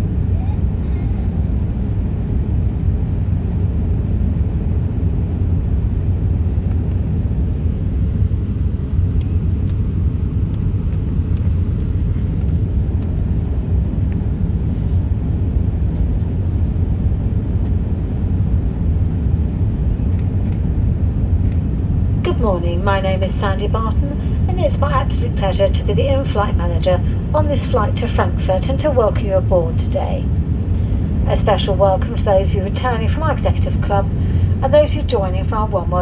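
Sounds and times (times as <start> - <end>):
airplane engine rumble in cabin: 0.0 - 36.0.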